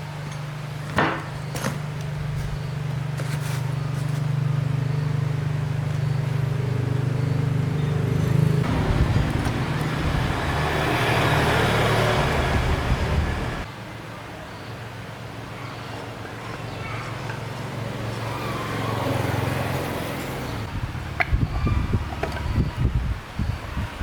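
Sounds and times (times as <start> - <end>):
engine humming: 0.0 - 13.7.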